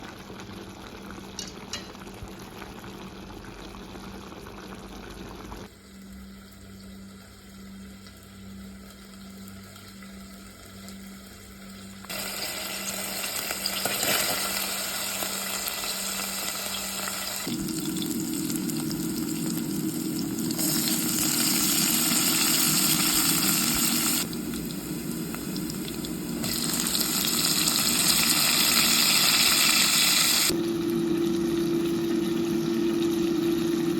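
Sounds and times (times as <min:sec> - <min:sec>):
liquid bubbling in a pan: 0:00.0 - 0:12.1
food sizzling in a pan: 0:05.8 - 0:33.9
low steady hum: 0:17.4 - 0:29.3.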